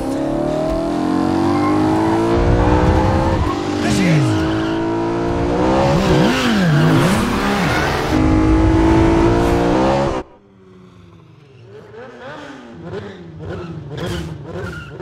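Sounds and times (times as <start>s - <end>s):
car engine revving hard: 0.0s - 10.2s.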